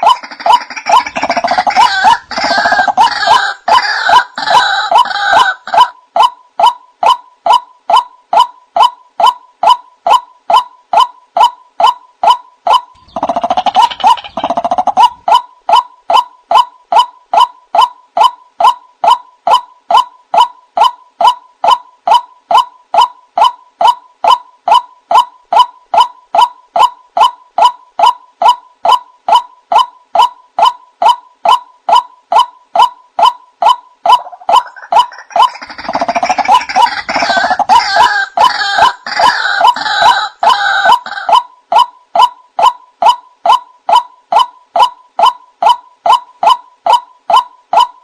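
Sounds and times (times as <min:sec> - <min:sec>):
waterhen calling: 0:00.0 - 0:06.3, 0:12.7 - 0:15.8, 0:32.8 - 0:41.4
harsh overlapping bird calls: 0:00.0 - 0:48.0.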